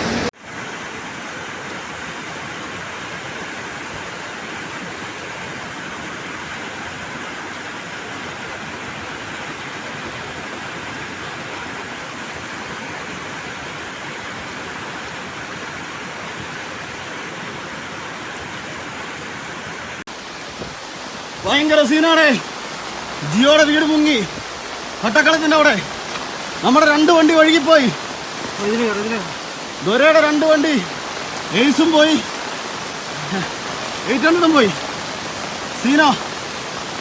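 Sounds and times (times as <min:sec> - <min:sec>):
floodwater rushing: 0:00.0 - 0:20.1.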